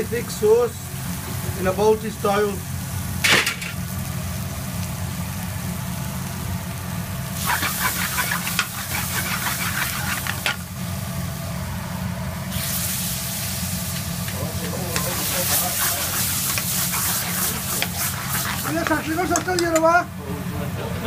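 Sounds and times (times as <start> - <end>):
food sizzling in a pan: 0.0 - 19.8
steady low hum: 0.0 - 21.0
metal spoon stirring: 7.5 - 10.6, 14.9 - 19.6.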